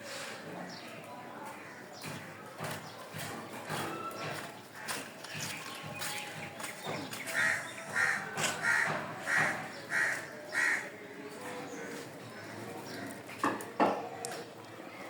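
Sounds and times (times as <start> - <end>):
crow cawing: 7.4 - 10.9.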